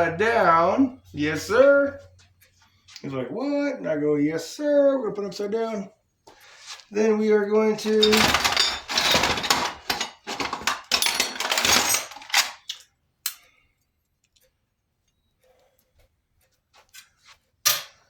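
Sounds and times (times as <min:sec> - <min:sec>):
metal parts clattering: 0:07.8 - 0:12.8.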